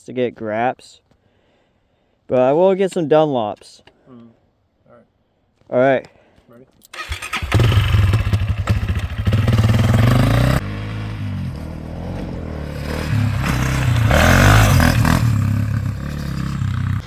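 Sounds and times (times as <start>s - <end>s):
dirt bike engine revving: 7.0s - 17.0s.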